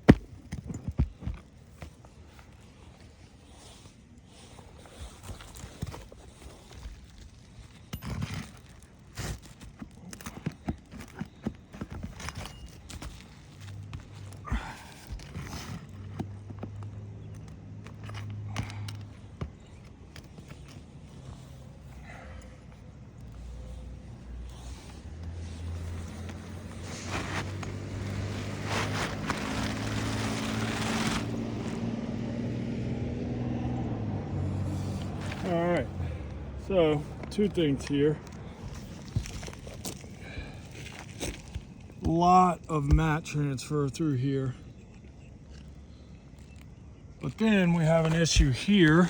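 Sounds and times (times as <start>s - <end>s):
knocks and scrapes on shingle roof: 0.0s - 31.9s, 34.7s - 46.6s, 47.2s - 49.0s
vehicle engine humming: 11.6s - 49.0s.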